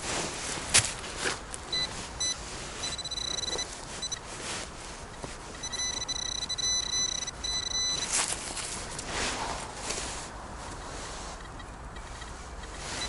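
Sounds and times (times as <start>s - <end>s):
rustling whoosh: 0.0s - 13.0s
metal detector tone: 1.7s - 4.3s, 5.1s - 8.3s.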